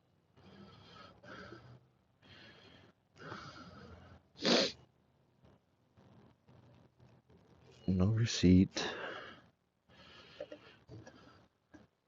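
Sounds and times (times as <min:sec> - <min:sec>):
person breathing: 0:00.4 - 0:04.7, 0:08.8 - 0:11.6.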